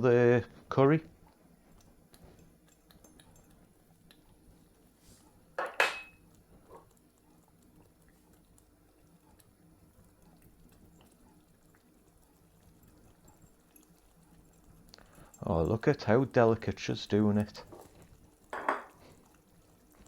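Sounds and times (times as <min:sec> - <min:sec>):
faint background hum: 0:00.0 - 0:20.0
utensil clinking against pot: 0:05.6 - 0:06.2, 0:18.5 - 0:19.0.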